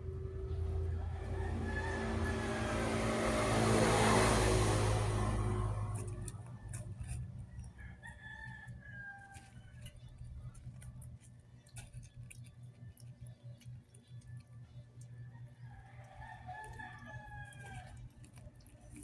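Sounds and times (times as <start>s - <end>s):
motor vehicle passing by: 0.0s - 7.8s.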